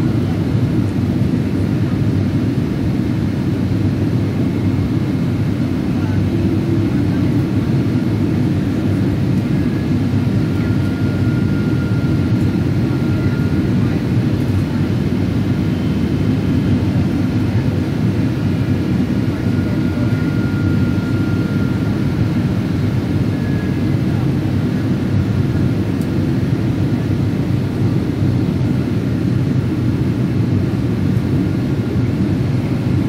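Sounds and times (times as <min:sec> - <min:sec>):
airliner cabin roar: 0:00.0 - 0:33.0.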